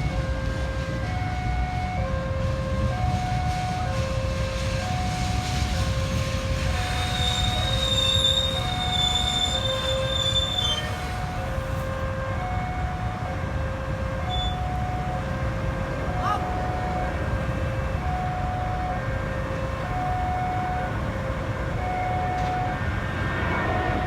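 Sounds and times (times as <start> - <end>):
train rumbling past: 0.0 - 24.0
two-tone electronic warning alarm: 0.0 - 24.0
train wheels squealing: 4.6 - 11.3, 14.3 - 14.7.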